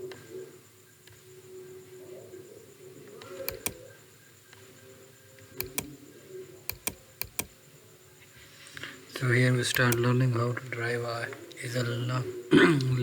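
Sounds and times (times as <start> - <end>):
faint steady tone: 0.0 - 13.0
sharp double clicks: 3.4 - 3.9, 5.6 - 6.0, 6.7 - 7.6, 9.7 - 10.2.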